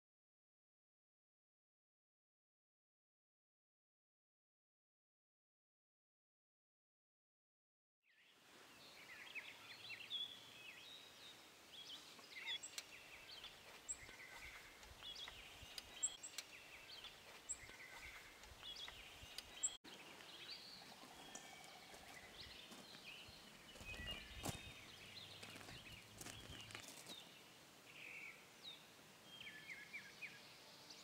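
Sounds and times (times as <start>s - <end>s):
birds chirping and trilling: 8.1s - 31.0s.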